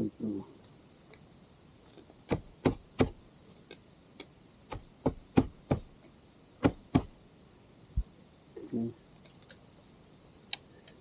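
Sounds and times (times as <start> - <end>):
sharp knocks and clicks: 2.3 - 3.2, 4.7 - 5.9, 6.6 - 7.1.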